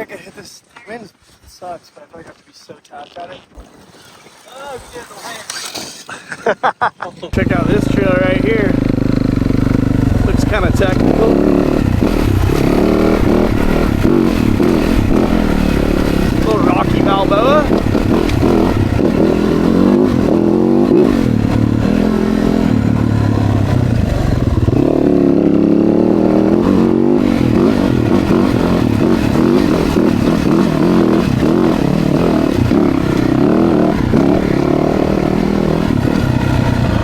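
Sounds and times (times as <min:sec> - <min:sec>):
dirt bike engines revving: 0:07.2 - 0:37.0.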